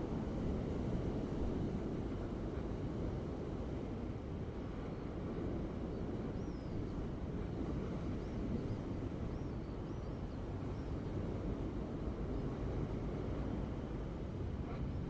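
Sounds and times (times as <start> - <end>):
ocean surf rumbling: 0.0 - 6.3, 10.4 - 15.0.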